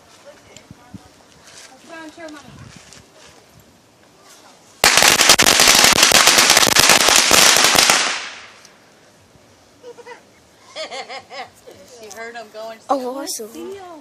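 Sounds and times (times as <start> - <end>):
firecrackers crackling pops: 4.8 - 8.8.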